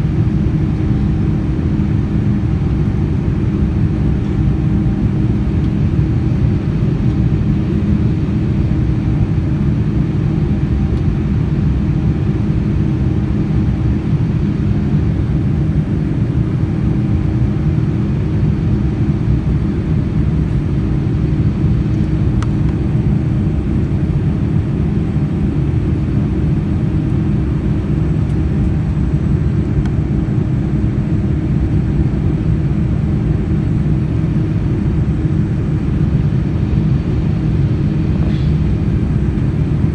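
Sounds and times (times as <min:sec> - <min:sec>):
airplane cabin engine rumble: 0:00.0 - 0:39.9
steady hums: 0:00.0 - 0:39.9.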